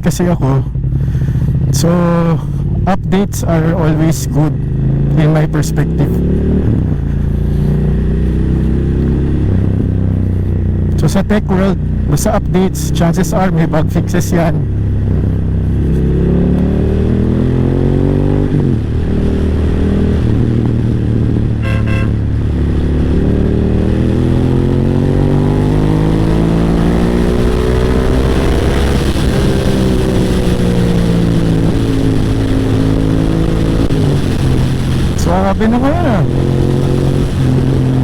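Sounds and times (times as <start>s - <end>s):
motorcycle engine running: 0.0s - 38.0s
horn toot: 21.6s - 22.3s.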